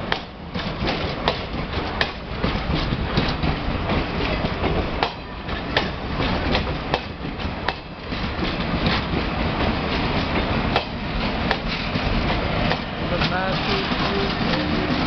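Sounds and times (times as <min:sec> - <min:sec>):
train rumbling past: 0:00.0 - 0:15.0
wheels clicking over rail joints: 0:00.0 - 0:15.0.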